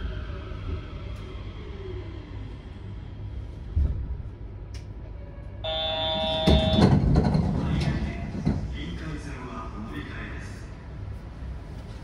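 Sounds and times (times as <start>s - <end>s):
train carriage rumble: 0.0s - 12.0s
electronic chime tone: 5.7s - 6.8s.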